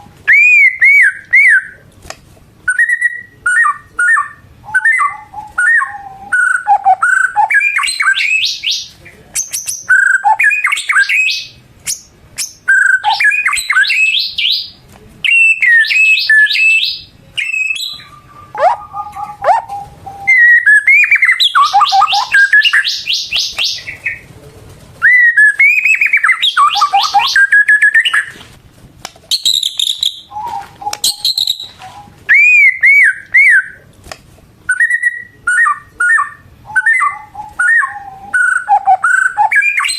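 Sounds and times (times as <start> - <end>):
bird singing whistled notes: 0.3 - 1.8, 2.7 - 24.2, 25.0 - 28.4, 29.3 - 33.8, 34.7 - 39.9.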